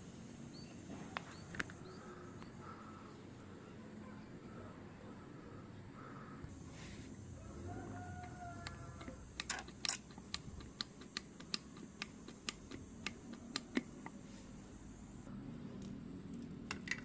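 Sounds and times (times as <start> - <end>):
hand tools clicking and tapping: 8.2 - 14.2, 15.8 - 17.0.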